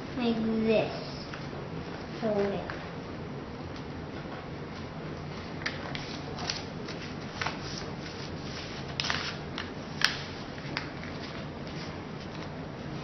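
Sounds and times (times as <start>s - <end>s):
paper rustling and crinkling: 5.6s - 12.5s.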